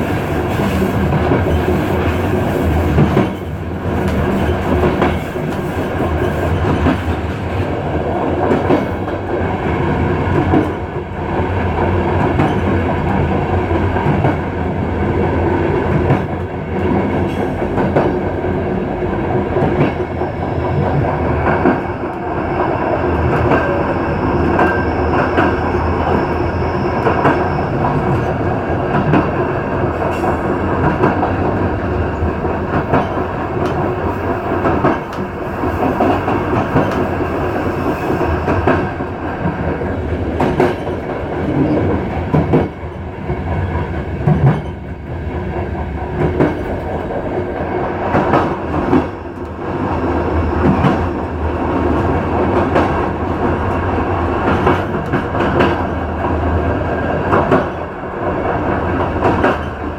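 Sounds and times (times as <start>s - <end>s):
clickety-clack of rail joints: 0.0s - 59.9s
train wheels rumbling on rail: 0.0s - 59.9s
faint high wheel squeal: 23.4s - 28.3s.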